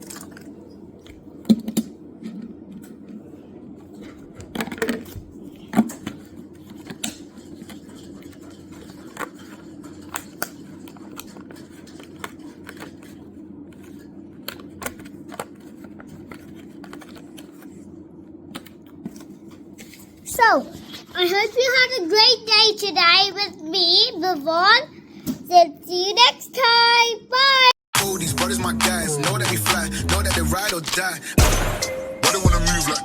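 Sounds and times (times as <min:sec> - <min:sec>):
steady low hum: 0:00.0 - 0:25.5.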